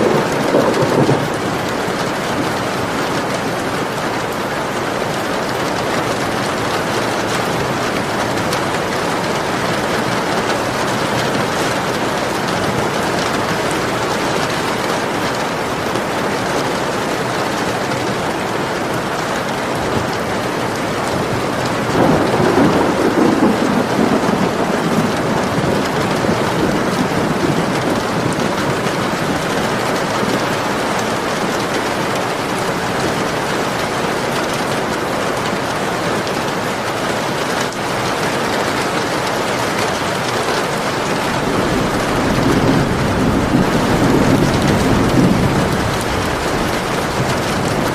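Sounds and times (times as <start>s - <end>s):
thunder rumbling: 0.0s - 4.8s, 19.4s - 34.6s, 40.8s - 47.9s
heavy rain falling: 0.0s - 47.9s.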